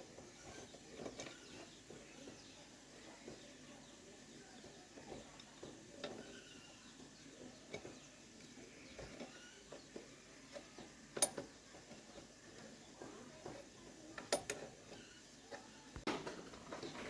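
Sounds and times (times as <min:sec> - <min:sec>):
tools and parts clicking: 0:00.4 - 0:01.7, 0:07.7 - 0:17.0.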